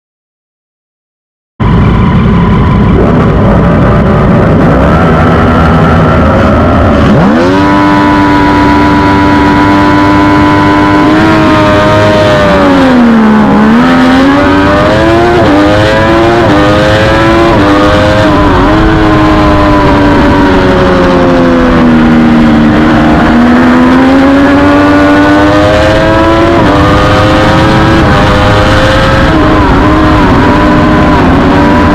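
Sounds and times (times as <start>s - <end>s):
racing motorcycle engine revving: 1.6s - 31.9s.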